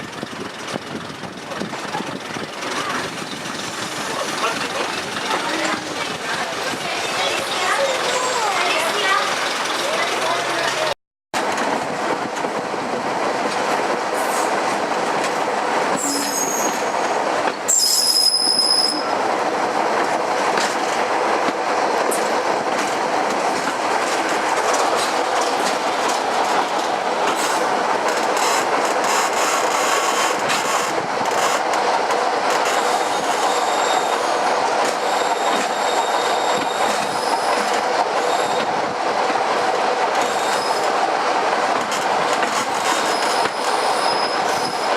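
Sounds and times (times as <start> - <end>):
train wheels rumbling on track: 0.0 - 44.9
high-pitched wheel squeals: 16.0 - 16.9, 17.7 - 19.1, 33.1 - 34.4, 35.0 - 38.6, 43.0 - 44.9.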